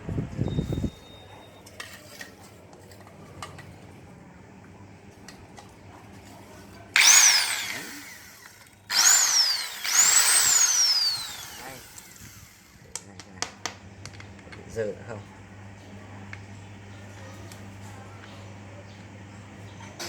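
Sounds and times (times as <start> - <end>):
electric cutter motor whining: 6.9 - 12.8.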